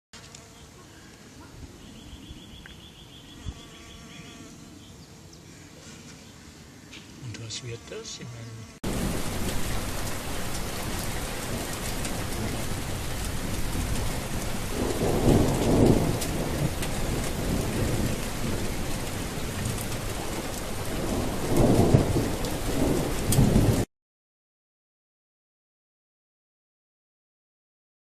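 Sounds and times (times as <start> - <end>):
heavy rain falling: 8.8 - 23.9
low thunder roll: 8.8 - 23.9.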